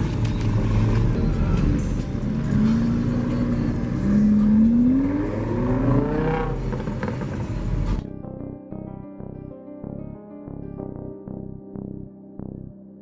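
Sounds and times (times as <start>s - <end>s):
car engine accelerating: 0.0s - 8.1s
music: 0.0s - 13.0s.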